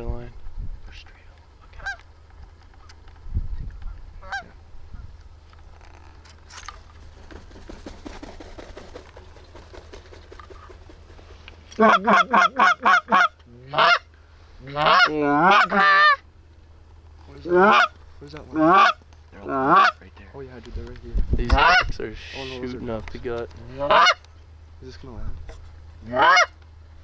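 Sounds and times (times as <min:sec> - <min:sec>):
goose clucking: 0:01.7 - 0:02.1, 0:04.2 - 0:04.6, 0:06.8 - 0:16.2, 0:17.3 - 0:20.2, 0:21.5 - 0:22.9, 0:23.6 - 0:24.4, 0:25.5 - 0:26.6
goose honking: 0:01.7 - 0:02.1, 0:04.2 - 0:04.6, 0:10.3 - 0:16.2, 0:17.4 - 0:20.2, 0:21.5 - 0:22.8, 0:23.6 - 0:24.3, 0:26.0 - 0:26.6.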